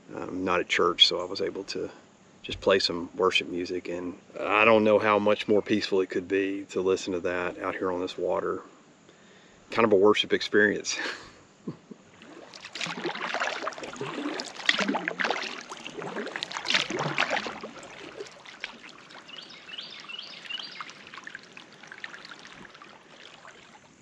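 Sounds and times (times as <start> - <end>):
paddle strokes splashing water: 12.1 - 24.0.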